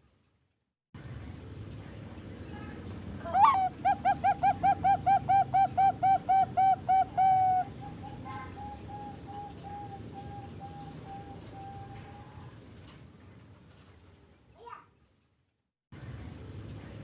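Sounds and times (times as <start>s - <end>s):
dove cooing: 3.3s - 12.6s.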